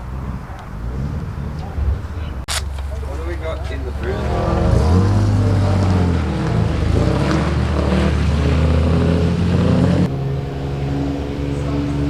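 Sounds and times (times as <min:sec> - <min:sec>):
rally car engine running: 0:02.5 - 0:12.0.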